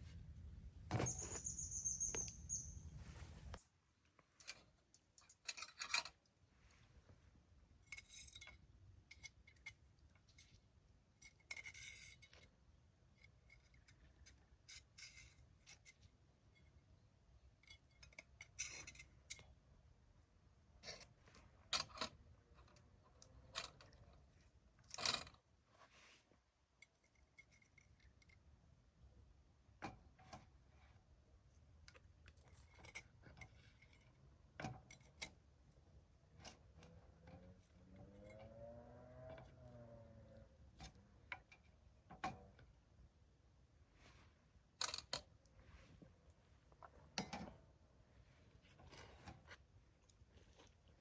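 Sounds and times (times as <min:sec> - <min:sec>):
small handling clicks and clinks: 0:04.4 - 0:06.3, 0:07.8 - 0:10.6, 0:17.5 - 0:19.6.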